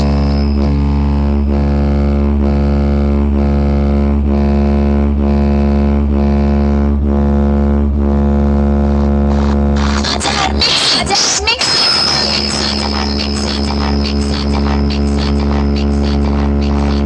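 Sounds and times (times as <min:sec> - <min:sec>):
busy electronic music: 0:00.0 - 0:02.9, 0:09.2 - 0:17.0
pulsing buzzing bass drone: 0:00.0 - 0:17.0.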